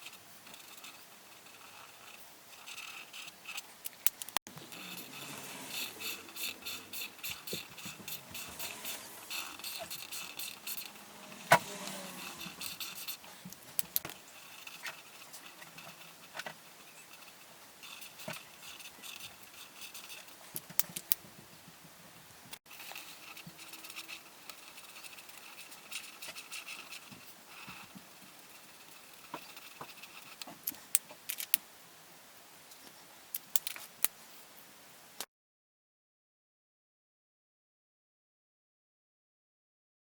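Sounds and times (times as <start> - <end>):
coloring tool scratching paper: 0.0 - 3.6, 4.5 - 21.2, 22.7 - 30.8.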